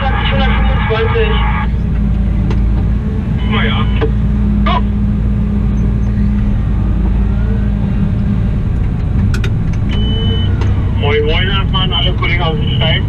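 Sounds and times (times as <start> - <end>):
diesel engine running: 0.0 - 13.0
short high beep: 9.9 - 10.6.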